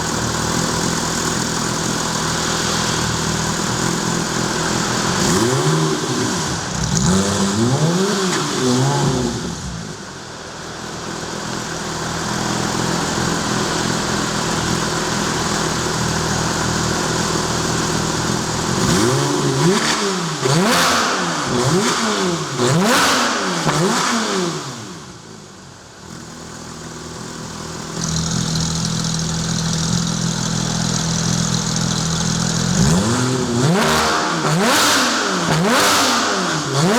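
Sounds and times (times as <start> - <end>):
sports car engine revving: 0.0 - 36.9.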